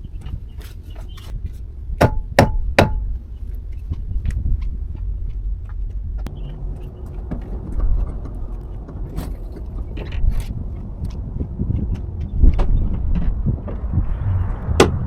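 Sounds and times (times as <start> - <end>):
diesel engine idling: 6.3 - 11.0.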